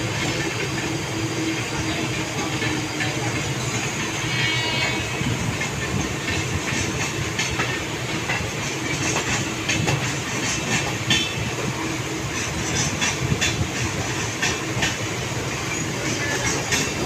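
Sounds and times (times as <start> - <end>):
train rumbling on track: 0.0 - 17.0.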